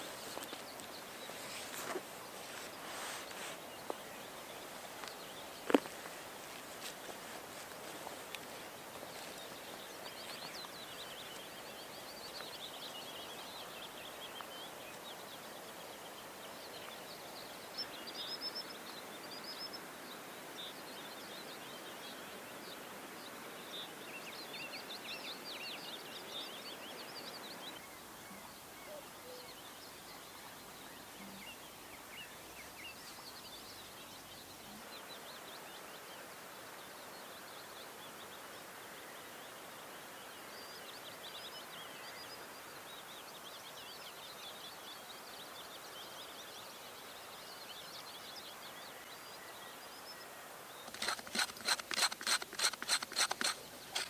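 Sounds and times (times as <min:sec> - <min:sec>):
outdoor background rush: 0:50.3 - 0:54.0.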